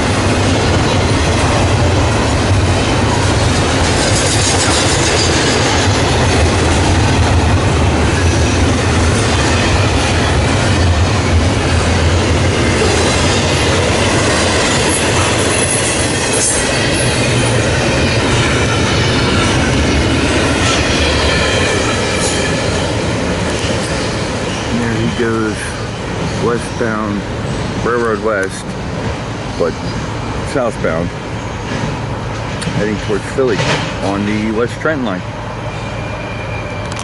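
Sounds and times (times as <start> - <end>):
freight train rumbling past: 0.0 - 37.0
high wheel squeal: 2.1 - 6.5, 8.1 - 28.4, 29.5 - 32.1, 35.0 - 37.0.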